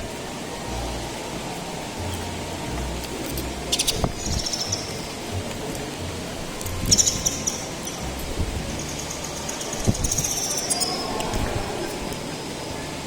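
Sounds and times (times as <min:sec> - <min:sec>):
steady low hum: 0:00.0 - 0:13.0
birds chirping: 0:03.6 - 0:05.3, 0:06.8 - 0:11.5.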